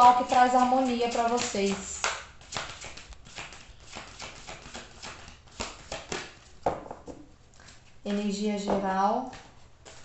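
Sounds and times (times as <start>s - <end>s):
cards tapping on a table: 1.2s - 7.2s.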